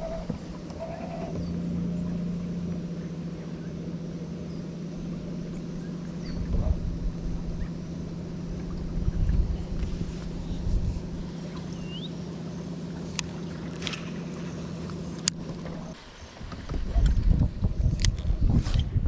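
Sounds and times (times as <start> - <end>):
small boat motor humming: 0.0 - 19.0
low bumps: 5.0 - 11.9.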